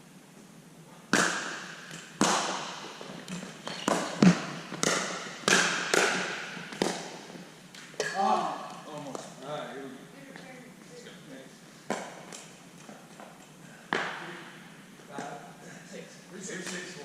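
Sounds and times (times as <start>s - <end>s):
ball bouncing on court: 1.1s - 8.2s
paddles hitting plastic ball: 1.1s - 9.3s.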